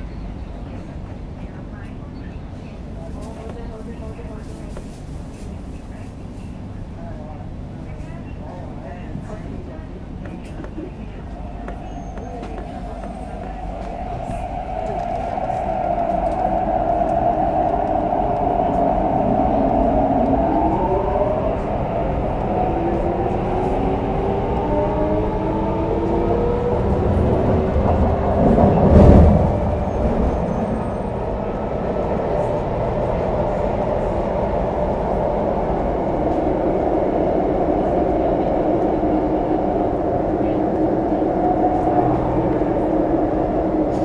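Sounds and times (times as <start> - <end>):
rail noise: 0.0 - 44.0
loud low rumble: 10.9 - 44.0.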